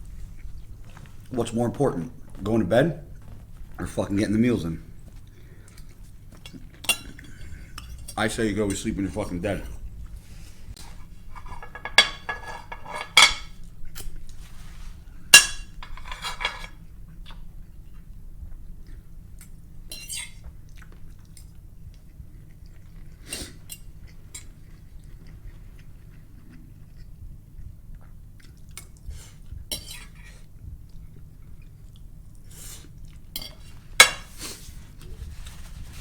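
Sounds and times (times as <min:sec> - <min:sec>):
cutlery clinking and scraping a dish: 0:10.8 - 0:14.1, 0:15.3 - 0:16.8, 0:29.7 - 0:30.2, 0:33.4 - 0:34.6.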